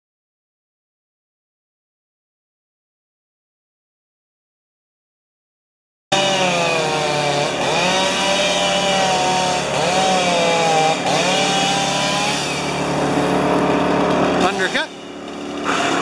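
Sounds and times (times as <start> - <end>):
chainsaw cutting wood: 6.1 - 16.0.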